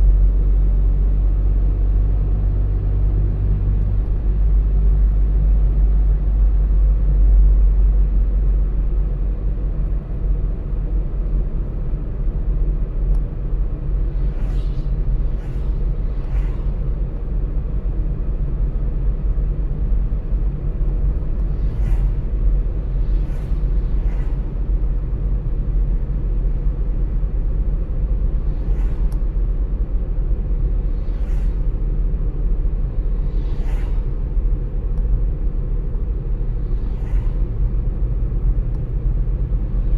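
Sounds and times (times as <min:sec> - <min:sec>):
car engine and tyre rumble: 0:00.0 - 0:39.9
faint hissing swishes: 0:13.5 - 0:18.6, 0:19.9 - 0:39.9.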